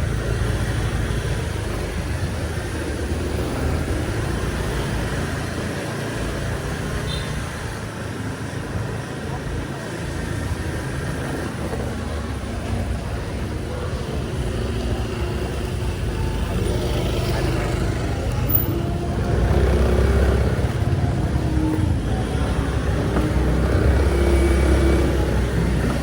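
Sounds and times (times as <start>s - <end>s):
steady low traffic rumble: 0.0s - 26.0s
vehicle engines passing: 0.0s - 26.0s.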